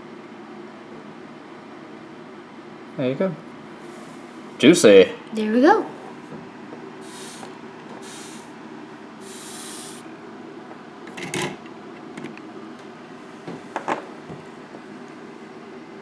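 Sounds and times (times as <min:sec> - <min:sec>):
steady low hum: 0:02.7 - 0:11.0
short hiss: 0:07.0 - 0:08.5, 0:09.2 - 0:10.1.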